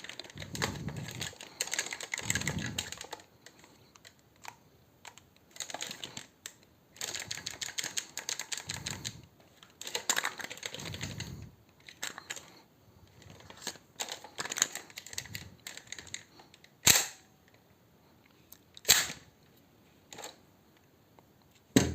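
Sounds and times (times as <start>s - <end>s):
clicks and rattles of gun parts: 0.0s - 12.5s, 13.1s - 17.6s, 20.1s - 20.4s.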